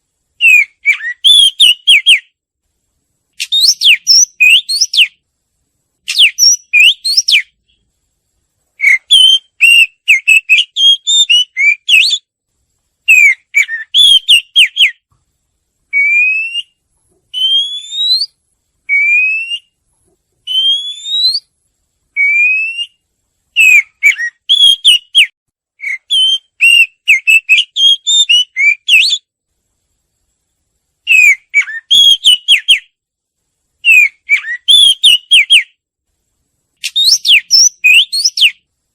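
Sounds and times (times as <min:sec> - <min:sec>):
bird singing whistled notes: 0:00.4 - 0:02.4, 0:03.4 - 0:05.2, 0:06.0 - 0:07.8, 0:08.8 - 0:12.3, 0:13.0 - 0:15.1, 0:15.9 - 0:19.8, 0:20.4 - 0:21.5, 0:22.2 - 0:23.0, 0:23.6 - 0:29.3, 0:31.1 - 0:33.0, 0:33.8 - 0:35.8, 0:36.8 - 0:38.7.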